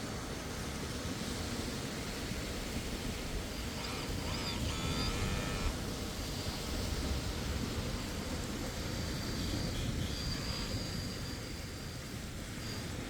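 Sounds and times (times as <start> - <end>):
high squeaks: 3.8 - 5.7.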